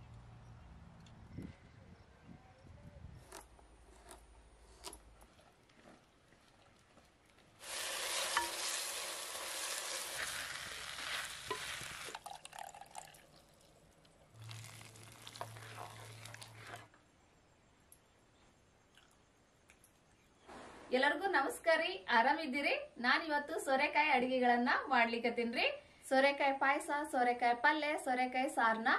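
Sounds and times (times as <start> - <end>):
food sizzling as it fries: 7.6 - 13.5, 14.4 - 16.9.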